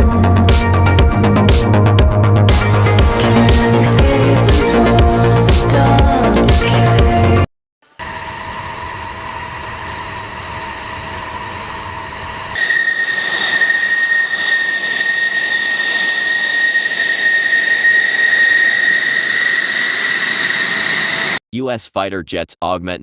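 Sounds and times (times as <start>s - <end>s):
music: 0.0s - 7.5s
high-pitched engine whine: 8.0s - 21.4s
jet engine roar: 8.0s - 21.4s.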